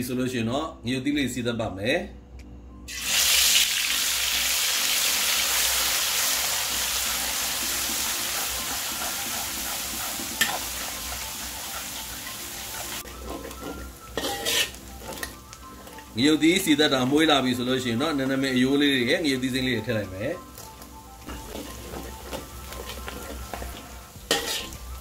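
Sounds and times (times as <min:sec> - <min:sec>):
paste sizzling in oil: 0:02.9 - 0:25.0
spatula scraping wok: 0:07.8 - 0:17.4, 0:20.5 - 0:25.0.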